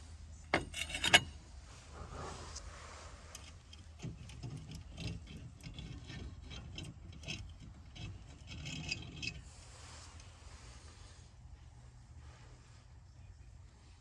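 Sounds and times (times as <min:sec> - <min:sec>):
objects being handled: 0:00.5 - 0:01.3.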